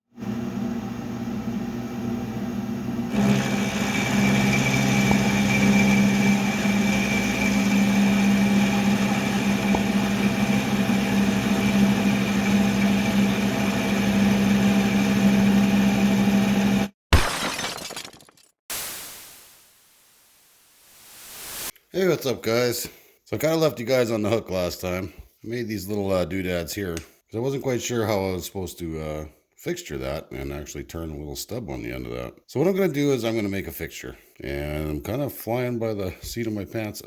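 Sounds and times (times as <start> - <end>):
machine tool running: 3.1 - 16.9.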